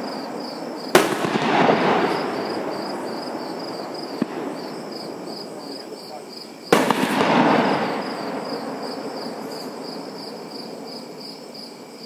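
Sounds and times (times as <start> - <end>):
rumbling echo: 0.0 - 6.0, 6.8 - 9.5
insects chirping: 0.0 - 12.0
fireworks shell boom: 0.9 - 2.9, 6.7 - 8.5.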